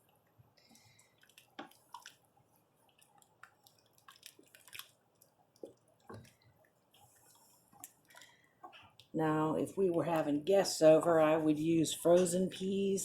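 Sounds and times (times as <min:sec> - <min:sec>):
stew popping and squelching: 0:00.8 - 0:09.1.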